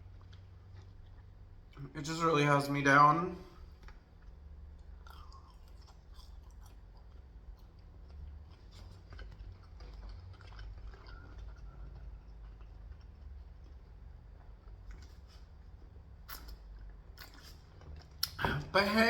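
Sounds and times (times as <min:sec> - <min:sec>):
person chewing food: 0:00.0 - 0:01.8, 0:03.5 - 0:18.4
low steady hum: 0:00.0 - 0:19.0
wet mouth clicks and smacks: 0:16.2 - 0:18.4.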